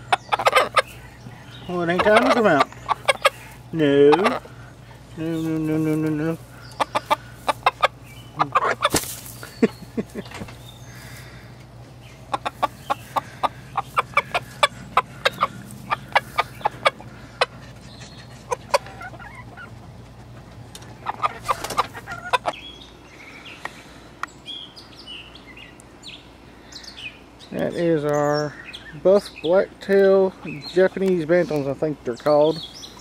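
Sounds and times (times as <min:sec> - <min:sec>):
chickens clucking: 0:00.0 - 0:24.6.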